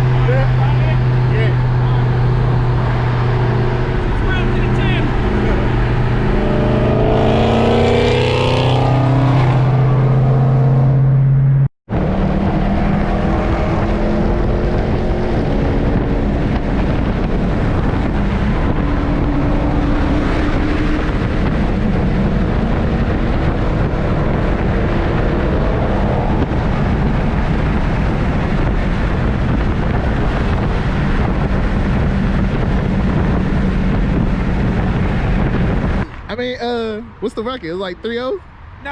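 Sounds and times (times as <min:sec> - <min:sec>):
car engine pulling hard: 0:00.0 - 0:38.9
tyre and wind noise: 0:11.9 - 0:37.5.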